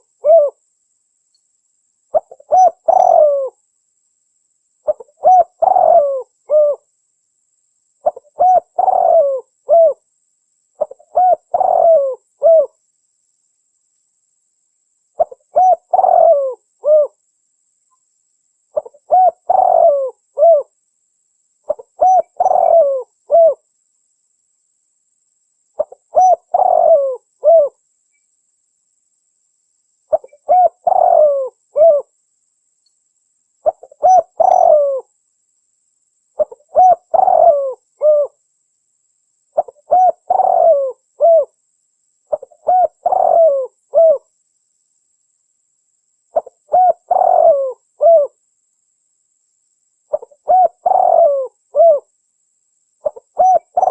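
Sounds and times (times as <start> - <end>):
dove cooing: 0.0 - 0.6, 2.1 - 3.6, 4.8 - 6.9, 8.0 - 10.0, 10.8 - 12.8, 15.2 - 17.2, 18.7 - 20.7, 21.7 - 23.6, 25.8 - 27.8, 30.1 - 32.1, 33.6 - 35.1, 36.4 - 38.4, 39.6 - 41.5, 42.3 - 44.3, 46.4 - 48.4, 50.1 - 52.1, 53.0 - 53.9.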